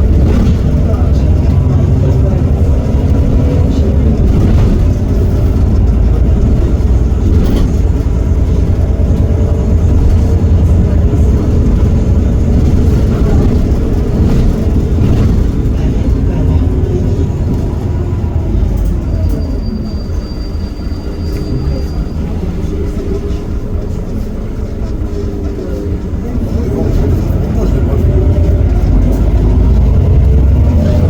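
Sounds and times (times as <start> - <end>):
bus diesel engine rumbling: 0.0 - 31.0
engine whine: 0.0 - 31.0.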